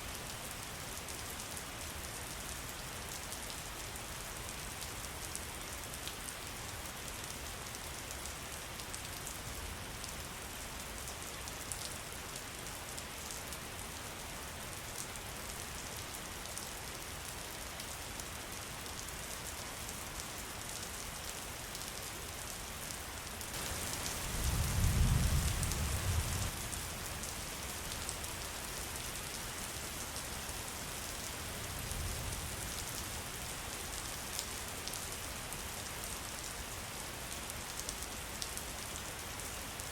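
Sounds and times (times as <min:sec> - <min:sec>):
steady rain falling: 0:00.0 - 0:39.9
low thunder rumble: 0:24.3 - 0:26.5.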